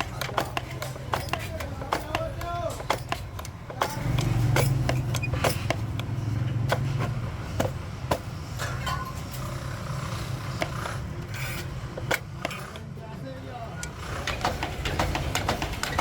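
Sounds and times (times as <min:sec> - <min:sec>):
sharp knocks: 0:00.0 - 0:08.3, 0:14.2 - 0:16.0.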